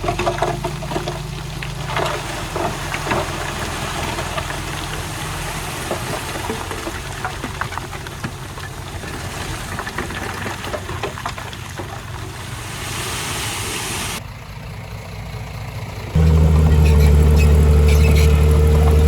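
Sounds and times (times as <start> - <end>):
heavy diesel machinery running: 11.9 - 19.0.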